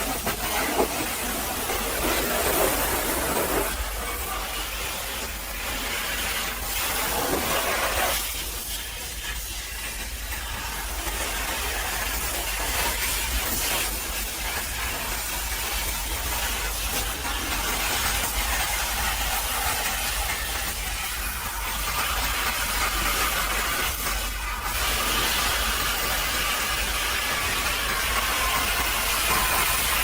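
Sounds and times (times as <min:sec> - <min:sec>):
pressure washer spray hissing: 0:00.0 - 0:30.0.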